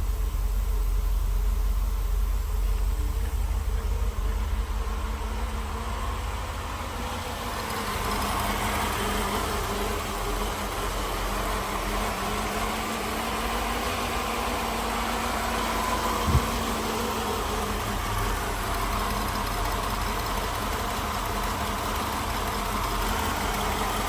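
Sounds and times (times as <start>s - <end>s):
car engine idling: 0.0s - 24.0s
brief thump: 16.2s - 16.8s.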